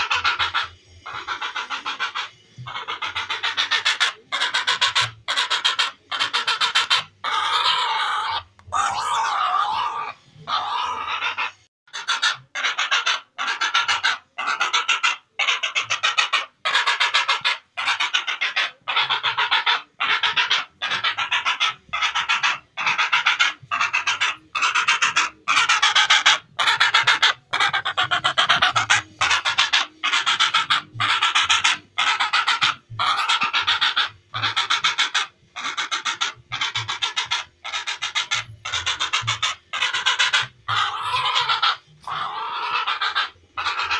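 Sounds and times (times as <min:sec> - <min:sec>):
heron rattling calls: 0:00.0 - 0:43.9.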